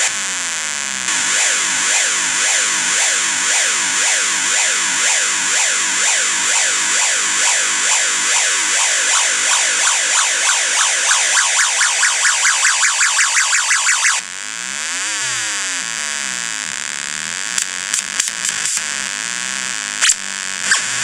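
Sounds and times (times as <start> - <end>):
harsh electronic siren: 1.1 - 14.3, 20.6 - 21.0.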